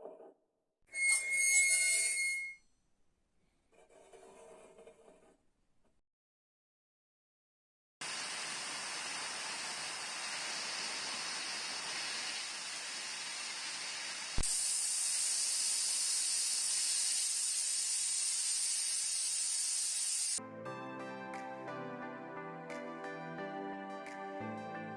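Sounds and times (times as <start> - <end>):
steady hiss: 8.0 - 20.4.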